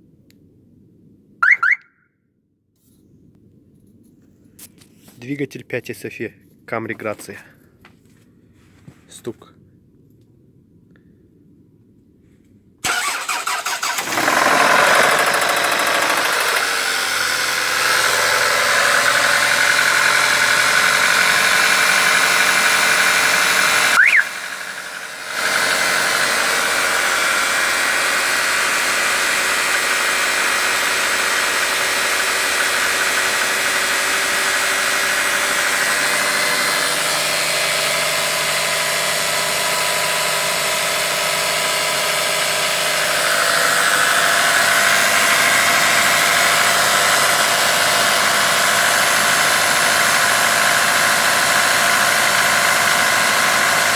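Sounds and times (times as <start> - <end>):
car engine cranking and starting: 12.8 - 53.9.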